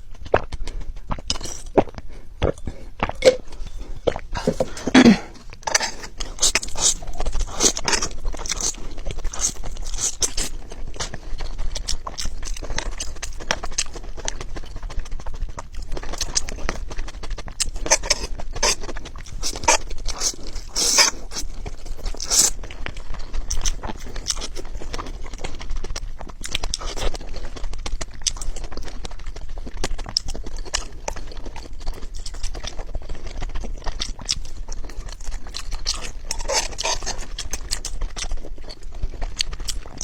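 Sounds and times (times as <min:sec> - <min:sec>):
chewing with crisp crunches: 0:00.0 - 0:40.0
wet mouth noises: 0:00.1 - 0:13.2, 0:17.3 - 0:22.8.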